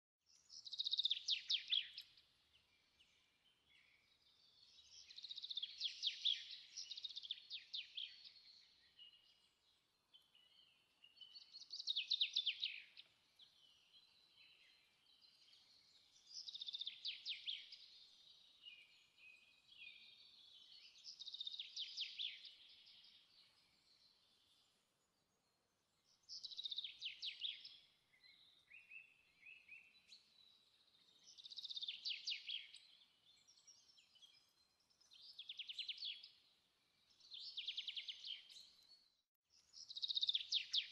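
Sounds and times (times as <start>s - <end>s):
faint bird chirps: 0.3s - 40.9s.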